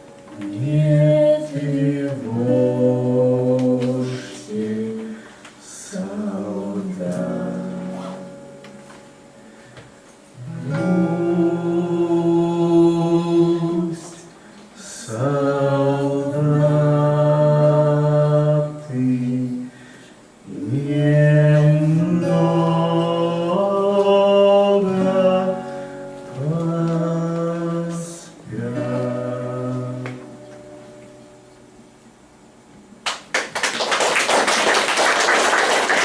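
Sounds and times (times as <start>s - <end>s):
people singing slow song: 0.4s - 8.4s, 10.4s - 30.5s.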